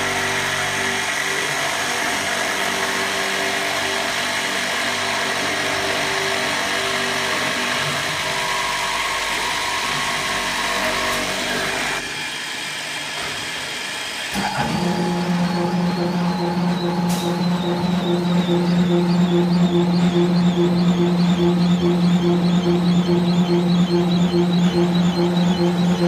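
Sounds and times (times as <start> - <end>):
drilling machine motor whining: 0.0 - 26.0
steady hum: 14.7 - 26.0.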